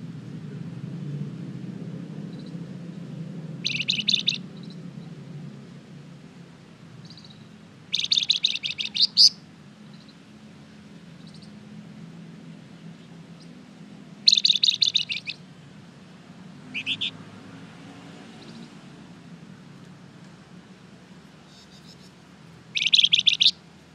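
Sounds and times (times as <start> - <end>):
songbird trilling: 3.6 - 5.1, 7.0 - 10.2, 11.2 - 11.6, 13.4 - 13.6, 14.2 - 15.4, 16.5 - 17.2, 18.4 - 18.7, 21.4 - 23.6.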